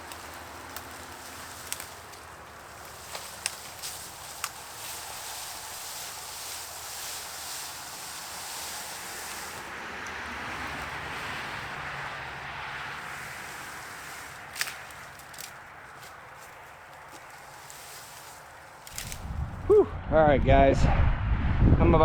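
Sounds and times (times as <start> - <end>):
rushing outdoor noise: 0.0 - 22.0.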